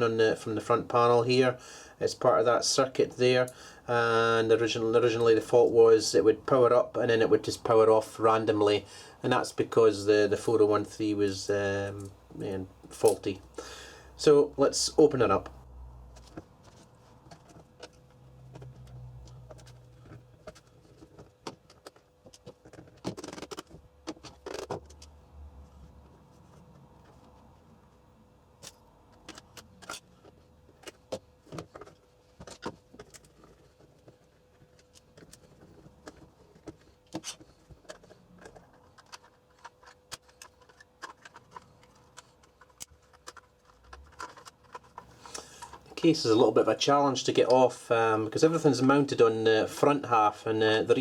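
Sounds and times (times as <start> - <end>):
plastic case clicks and scrapes: 16.1 - 25.1, 28.6 - 46.0.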